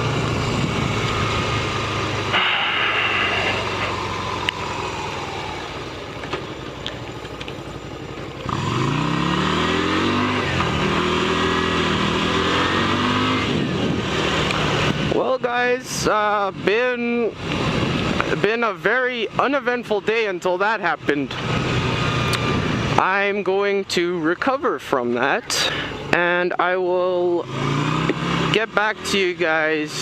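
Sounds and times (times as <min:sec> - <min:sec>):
motorcycle engine accelerating: 0:00.0 - 0:15.4, 0:16.1 - 0:18.6, 0:21.2 - 0:23.0, 0:27.2 - 0:30.0.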